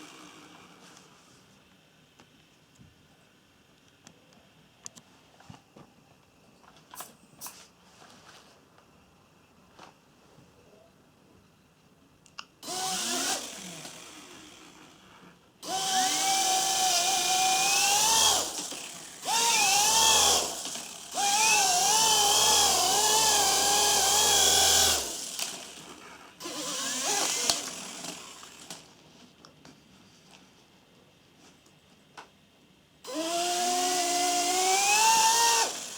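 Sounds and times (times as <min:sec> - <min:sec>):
toy helicopter motor whining: 0:12.6 - 0:15.0, 0:15.6 - 0:28.9, 0:33.1 - 0:35.9.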